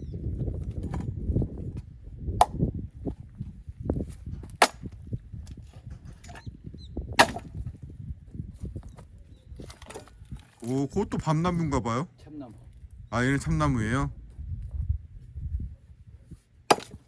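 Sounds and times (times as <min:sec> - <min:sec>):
axe splitting logs with sharp cracks: 0:02.4 - 0:02.7, 0:04.4 - 0:06.4, 0:07.2 - 0:07.8, 0:16.7 - 0:17.0.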